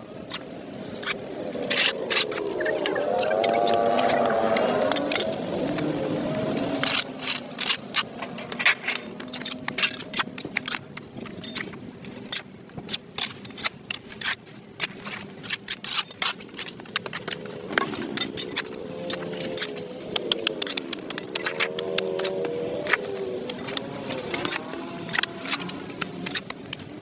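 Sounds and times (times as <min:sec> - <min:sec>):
hand tool scraping concrete: 0:12.3 - 0:27.0.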